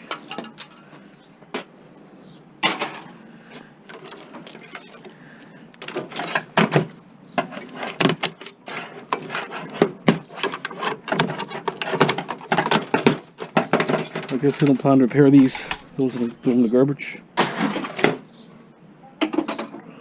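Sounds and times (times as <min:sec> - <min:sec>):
plastic and metal parts clattering: 0:00.0 - 0:01.7, 0:02.6 - 0:05.2, 0:05.8 - 0:16.6, 0:17.4 - 0:18.2, 0:19.2 - 0:19.8.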